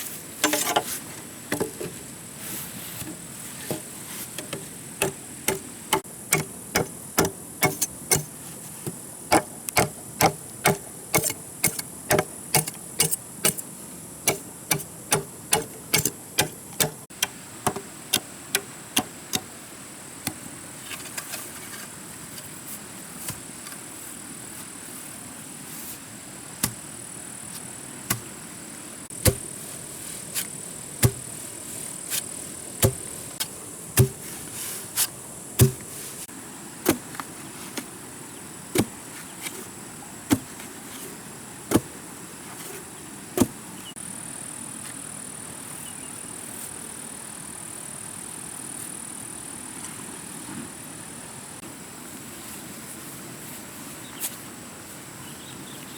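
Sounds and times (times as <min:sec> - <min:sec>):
tool striking hard material: 0:00.4 - 0:00.9, 0:03.0 - 0:19.5, 0:26.6 - 0:26.8, 0:29.1 - 0:29.6, 0:30.4 - 0:31.4, 0:32.8 - 0:34.5, 0:35.6 - 0:36.0.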